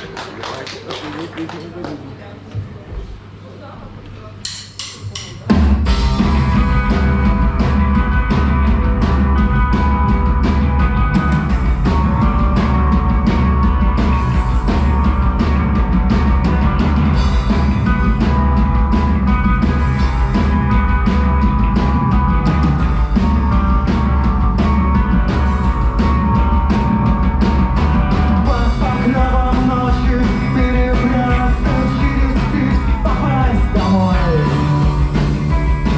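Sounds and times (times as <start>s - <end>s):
drum kit beating: 4.4s - 35.9s
rock band playing loudly: 4.8s - 35.9s.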